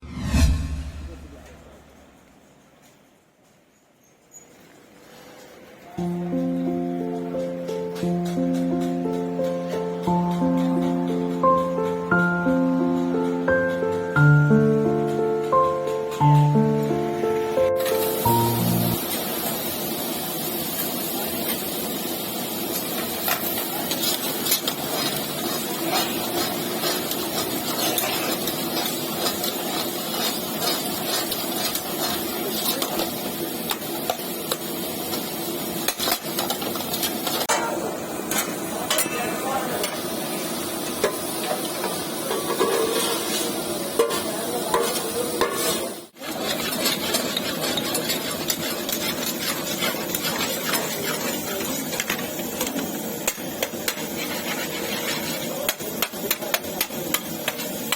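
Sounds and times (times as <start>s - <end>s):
food sizzling in a pan: 6.0s - 57.9s
metal utensil scraping a pan: 23.2s - 35.2s, 35.8s - 37.6s, 41.1s - 57.9s.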